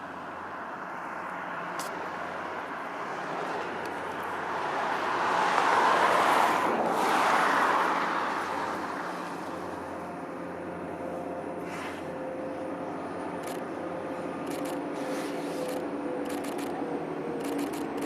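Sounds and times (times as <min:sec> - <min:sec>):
vehicle passing by: 0:02.6 - 0:09.9.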